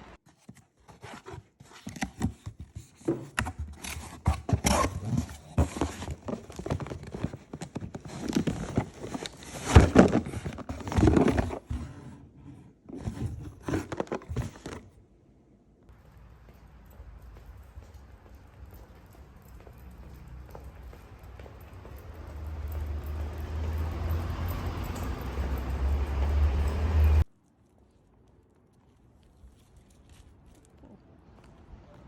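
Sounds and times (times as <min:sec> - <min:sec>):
clicks scrapes and crinkling: 0:00.2 - 0:11.8, 0:12.9 - 0:14.9, 0:27.3 - 0:31.0.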